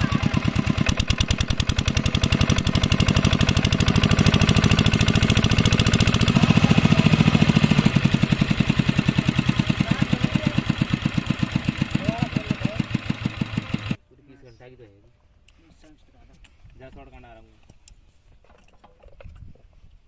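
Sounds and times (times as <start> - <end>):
diesel water pump running: 0.0 - 14.0.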